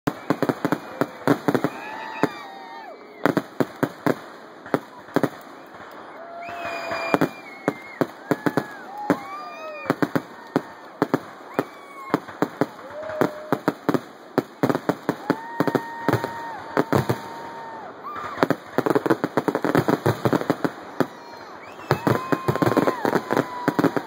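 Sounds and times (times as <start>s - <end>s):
firework shell bursts and crackling: 0.1s - 17.5s.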